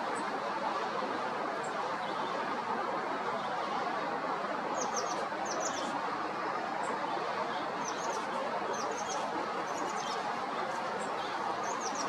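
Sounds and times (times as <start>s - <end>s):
steady rushing noise: 0.0s - 12.0s
songbird chirping: 4.8s - 6.0s, 6.9s - 12.0s.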